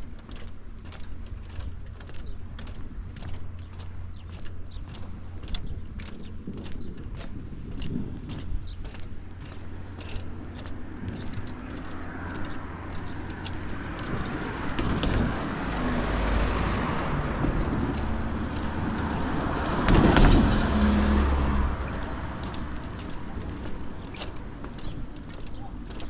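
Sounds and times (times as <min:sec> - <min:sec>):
car driving past: 0:10.5 - 0:24.7.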